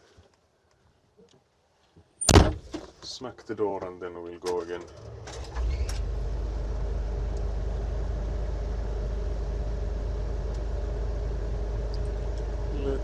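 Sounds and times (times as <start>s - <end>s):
bulldozer engine drone: 4.9s - 13.0s.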